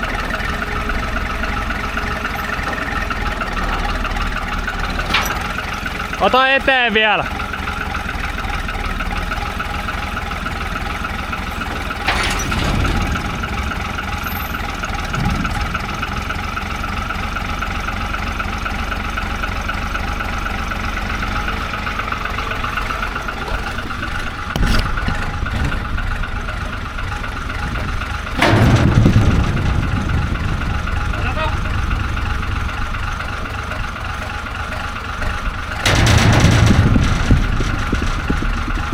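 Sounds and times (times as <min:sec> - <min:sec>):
vehicle engine running: 0:00.0 - 0:38.9
knocks and clunks: 0:02.4 - 0:06.2, 0:09.0 - 0:16.1, 0:21.7 - 0:32.2, 0:33.0 - 0:38.4.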